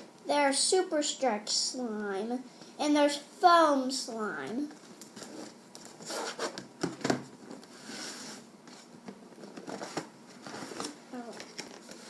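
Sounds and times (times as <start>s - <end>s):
packaging rubbing and scraping: 5.2s - 6.6s.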